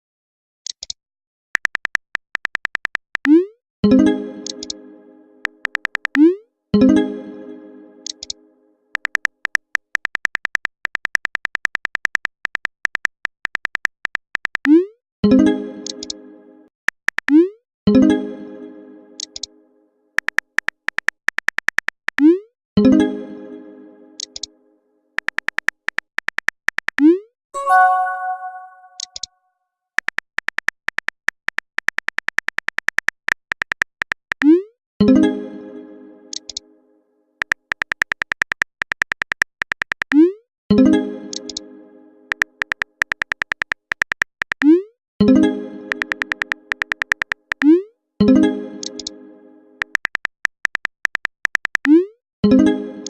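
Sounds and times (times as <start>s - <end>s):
phone keyboard typing clicks: 1.6s - 3.3s, 4.4s - 4.8s, 5.5s - 6.2s, 8.1s - 8.4s, 9.0s - 14.7s, 20.2s - 22.2s, 24.2s - 24.5s, 25.2s - 27.0s, 30.0s - 34.5s, 36.3s - 36.6s, 37.4s - 40.2s, 41.3s - 41.6s, 42.3s - 44.7s, 45.9s - 47.7s, 48.8s - 49.1s, 49.8s - 51.9s
message alert chime: 27.6s - 29.2s.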